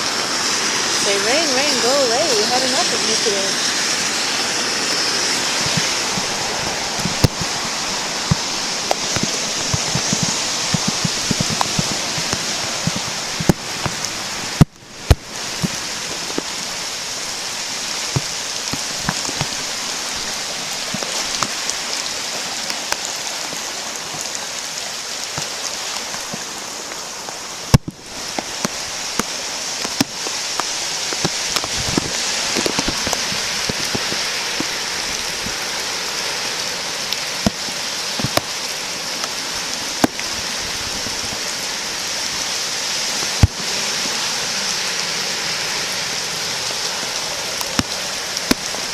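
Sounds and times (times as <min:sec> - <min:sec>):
flooded creek rushing: 0:00.0 - 0:48.9
rain drops ticking: 0:00.0 - 0:48.9.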